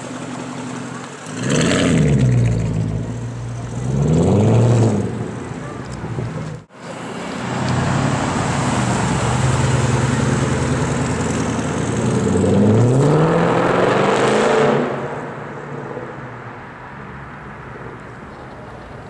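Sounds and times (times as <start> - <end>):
car engine revving and accelerating: 1.2 - 5.6, 6.9 - 15.4.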